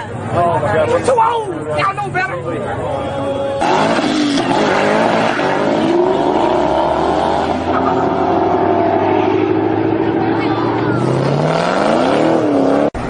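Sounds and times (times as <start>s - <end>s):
car engine revving: 3.6s - 13.0s.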